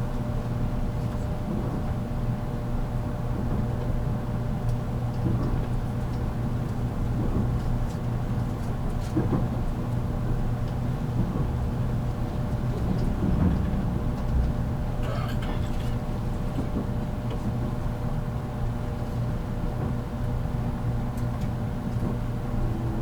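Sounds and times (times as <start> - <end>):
train wheels rumbling on rail: 0.0 - 23.0
train motor hum: 10.6 - 17.4.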